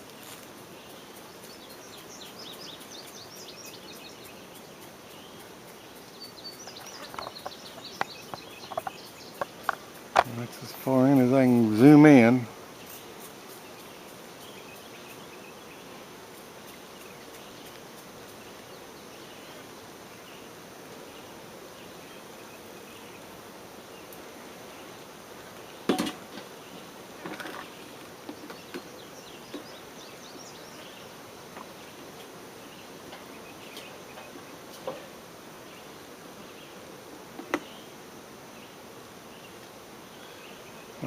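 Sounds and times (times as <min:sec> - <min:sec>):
bee swarm buzzing: 0:00.0 - 0:41.0.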